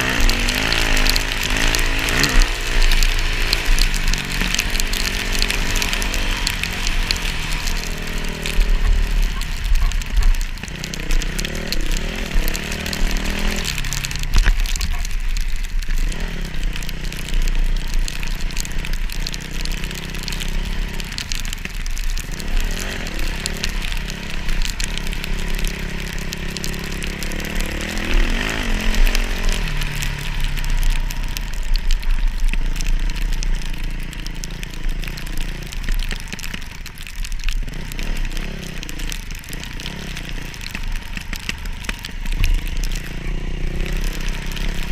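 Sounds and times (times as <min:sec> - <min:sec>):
dirt bike engines revving: 0:00.0 - 0:44.9.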